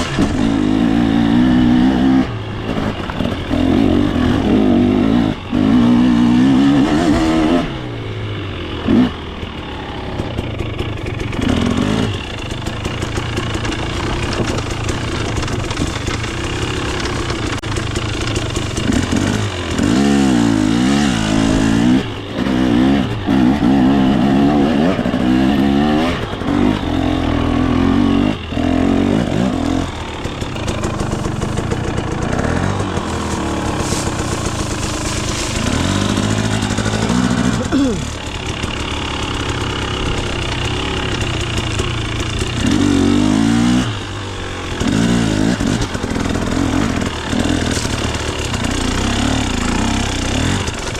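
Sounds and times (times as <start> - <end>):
two-stroke engine revving: 0.0 - 50.9.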